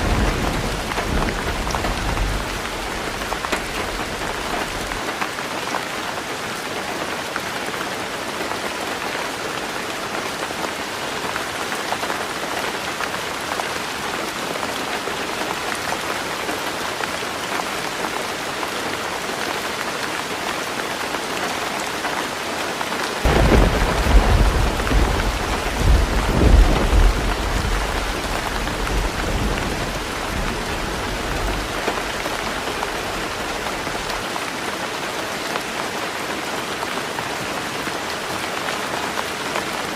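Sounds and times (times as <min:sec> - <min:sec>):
thunder rumbling: 0:00.0 - 0:05.0, 0:23.3 - 0:34.2
heavy rain on a tin roof: 0:00.0 - 0:39.9.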